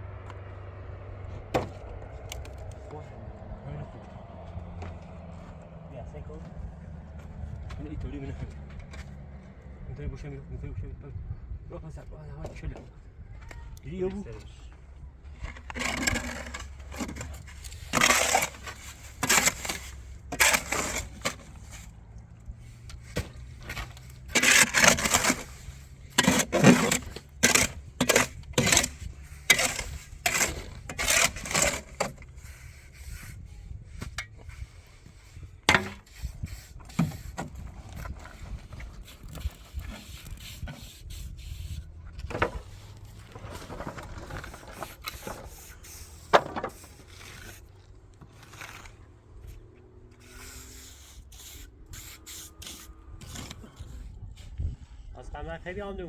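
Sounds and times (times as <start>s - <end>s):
hand tool scraping rough material: 15.4s - 54.7s.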